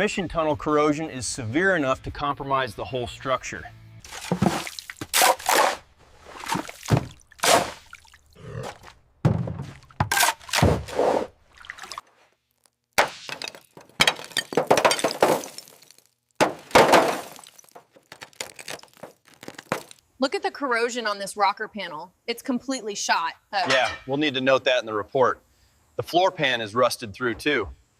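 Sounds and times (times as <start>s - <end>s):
corroded car metal thunking and breaking: 9.2s - 10.9s, 13.0s - 15.7s, 16.4s - 18.0s.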